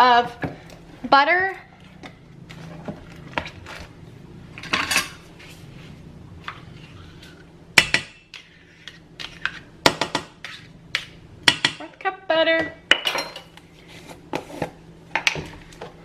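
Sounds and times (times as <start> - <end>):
pots and pans clattering: 4.6 - 5.2, 12.9 - 13.6.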